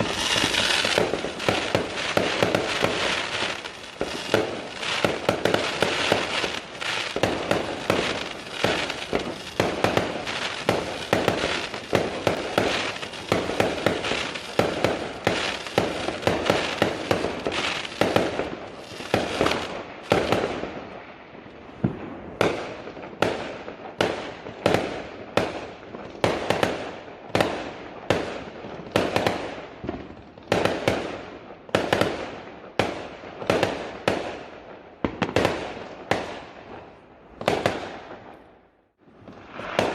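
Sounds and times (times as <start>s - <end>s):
fireworks crackling: 0.0s - 31.1s, 39.0s - 39.9s
fireworks bangs: 0.0s - 39.9s.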